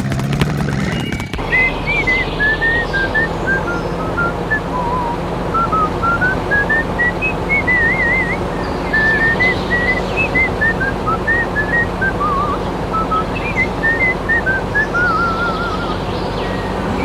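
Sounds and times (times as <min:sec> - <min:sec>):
person whistling a tune: 0:03.0 - 0:08.4.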